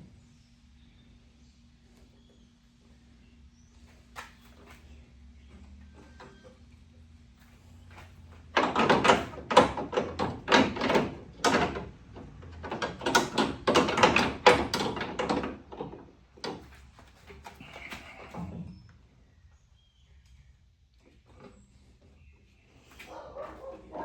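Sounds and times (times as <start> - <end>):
tools knocking and clattering: 8.3 - 16.8.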